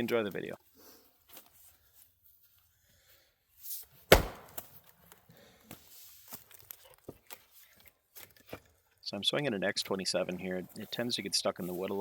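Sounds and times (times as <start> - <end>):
axe swish: 4.1 - 4.7
axe chopping log: 4.1 - 4.8.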